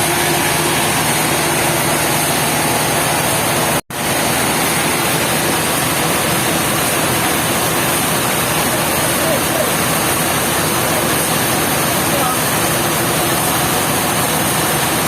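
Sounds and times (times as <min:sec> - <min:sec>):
sawmill machinery running: 0:00.0 - 0:15.0.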